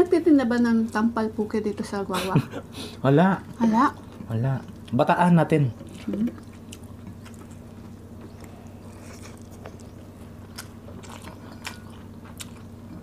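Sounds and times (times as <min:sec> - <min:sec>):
steady low hum: 0:00.0 - 0:13.0
chewing with wet clicks: 0:03.5 - 0:05.2, 0:05.8 - 0:13.0.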